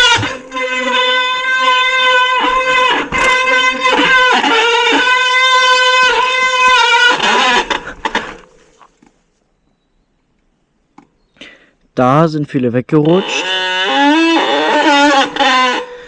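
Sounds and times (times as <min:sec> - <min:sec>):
bicycle brake squealing: 0:00.0 - 0:08.3.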